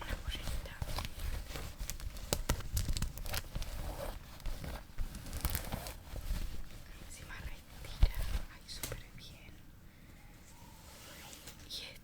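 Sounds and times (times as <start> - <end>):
hands handling clothing packaging: 0.2 - 9.0.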